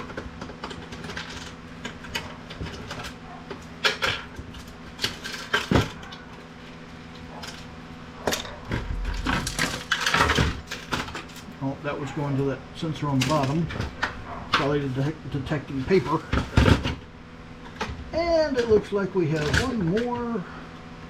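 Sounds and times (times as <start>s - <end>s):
printer parts clicking and rattling: 0.0s - 6.2s, 8.3s - 11.5s.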